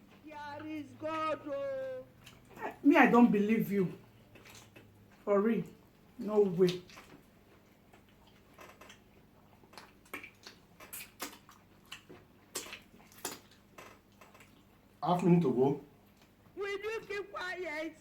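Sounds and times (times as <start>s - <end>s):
chewing clicks and smacks: 2.2s - 2.6s, 4.0s - 5.8s, 6.6s - 14.9s, 16.0s - 16.5s.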